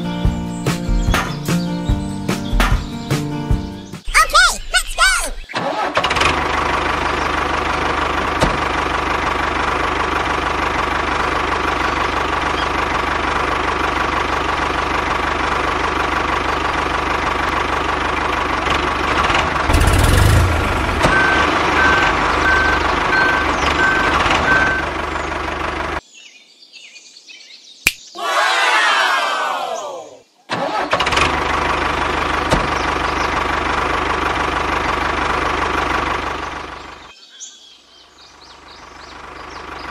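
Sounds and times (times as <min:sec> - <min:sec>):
tractor engine running: 0:05.6 - 0:26.0, 0:30.5 - 0:37.1, 0:38.4 - 0:39.9
evenly spaced beeps: 0:21.1 - 0:24.9.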